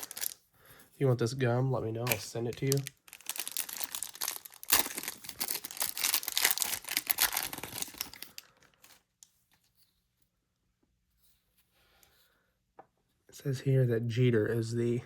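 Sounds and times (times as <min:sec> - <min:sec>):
wrapper crinkling: 0:00.0 - 0:00.4, 0:02.0 - 0:09.1
wrapper ripping: 0:00.0 - 0:00.4, 0:02.0 - 0:09.0.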